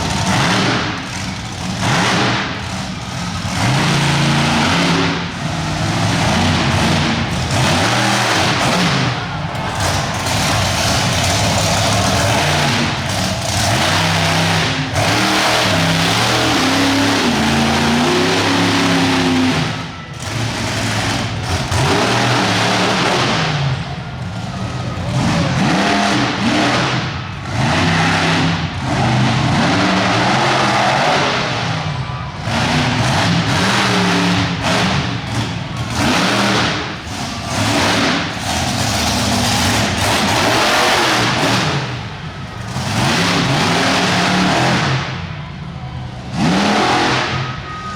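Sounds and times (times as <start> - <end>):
monster truck engine revving: 0.0 - 47.9.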